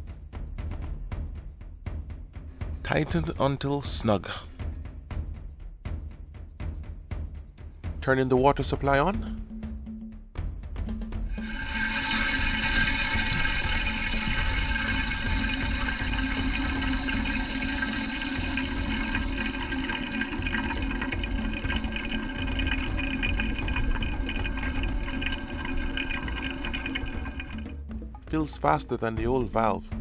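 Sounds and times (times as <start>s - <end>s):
toilet tank refilling hiss: 11.3s - 27.7s.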